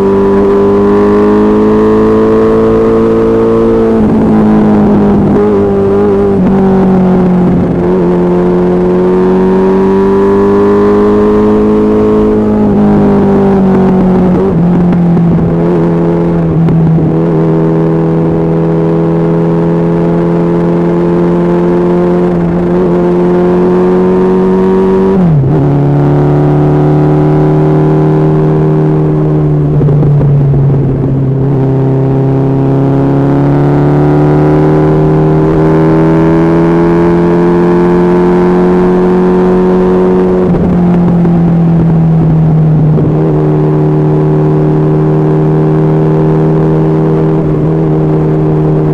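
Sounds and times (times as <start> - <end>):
motorcycle engine accelerating: 0.0 - 48.9.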